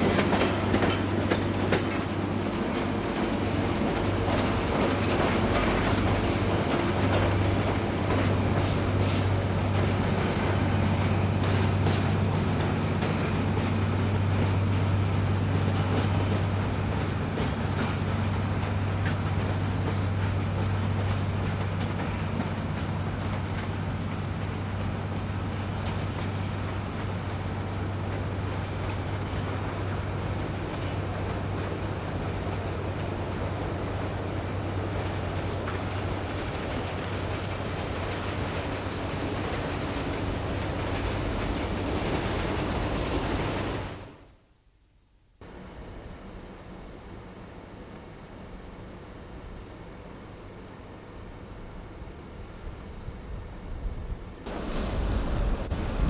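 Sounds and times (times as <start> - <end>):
train rumbling on rails: 0.0 - 44.3, 45.4 - 56.0
wheel squeal: 5.2 - 8.8.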